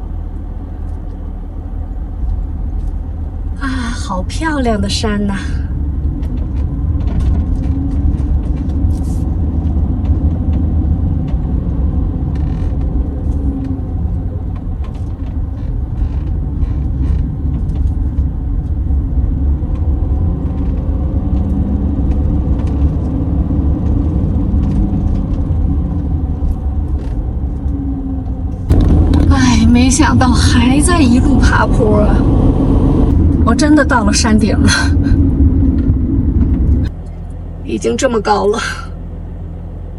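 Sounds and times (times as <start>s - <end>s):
engine and road rumble: 0.0s - 39.9s
light clicks and rattles: 5.7s - 29.3s.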